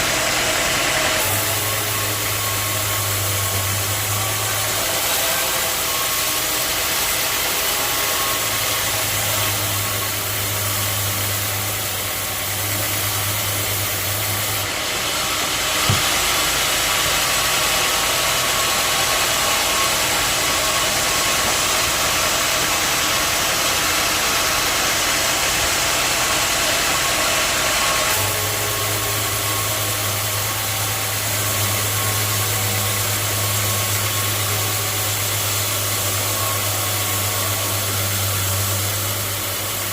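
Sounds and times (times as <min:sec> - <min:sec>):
sawmill machinery running: 0:00.0 - 0:39.9
sharp knock: 0:15.8 - 0:16.3.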